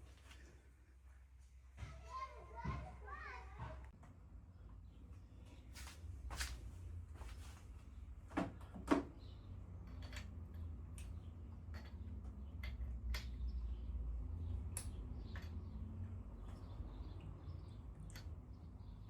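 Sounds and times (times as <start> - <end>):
hand tools clicking and tapping: 9.8 - 13.7, 14.7 - 16.6.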